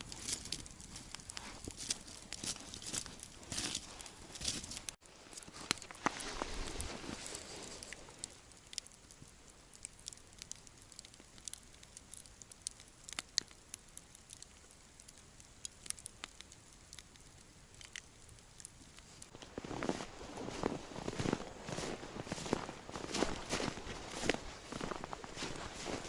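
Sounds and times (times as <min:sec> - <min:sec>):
sharp pops and snaps: 0:00.0 - 0:06.2, 0:07.7 - 0:19.5
campfire crackling: 0:00.0 - 0:26.0.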